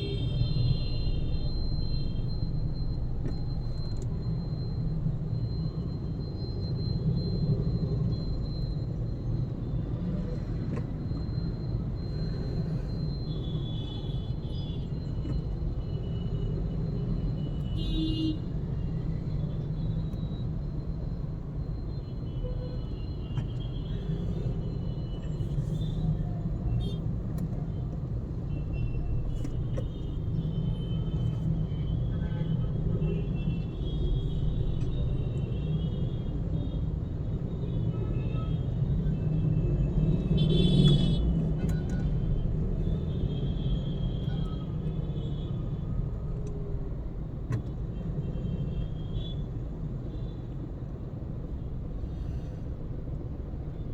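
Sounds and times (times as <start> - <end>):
road noise: 22.8 - 53.9.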